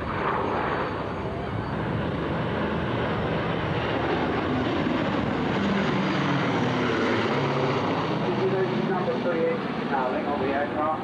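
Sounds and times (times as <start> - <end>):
propeller plane engines droning: 0.0 - 11.0.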